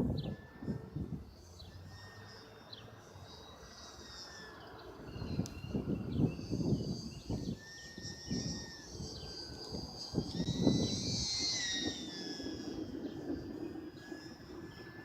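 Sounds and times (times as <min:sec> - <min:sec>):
wind buffeting microphone: 0:00.0 - 0:01.4, 0:04.9 - 0:15.0
model plane motor whine: 0:00.0 - 0:15.0.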